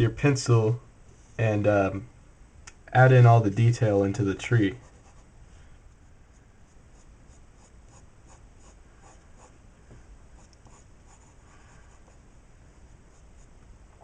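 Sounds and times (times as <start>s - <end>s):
pencil scratching on paper: 4.7s - 5.3s, 6.9s - 9.6s, 10.4s - 12.2s.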